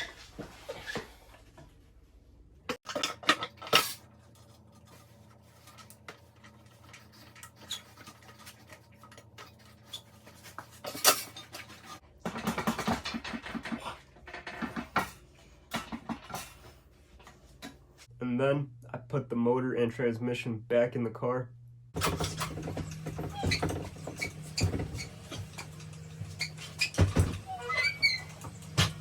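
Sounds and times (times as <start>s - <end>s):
metal tools clinking and scraping: 7.1s - 12.0s.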